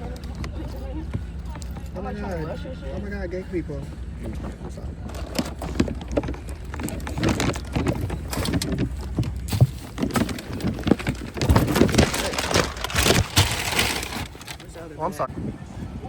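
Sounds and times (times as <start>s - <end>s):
handling knocks and rustles: 4.2s - 14.9s
wind rumbling on microphone: 14.2s - 16.0s.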